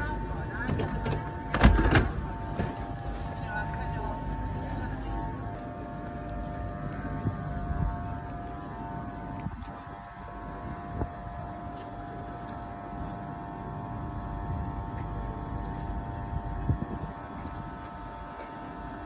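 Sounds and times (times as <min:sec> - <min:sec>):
train engine whining hum: 0:00.0 - 0:19.0.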